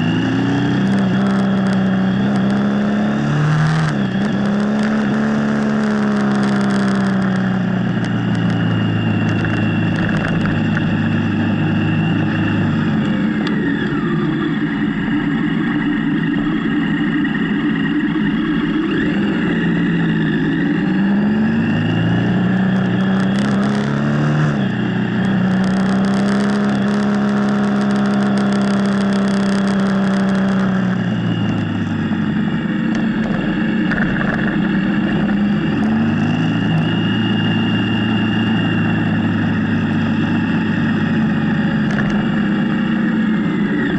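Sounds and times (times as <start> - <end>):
motorcycle engine running: 0.0 - 43.9
wind noise: 17.3 - 39.0.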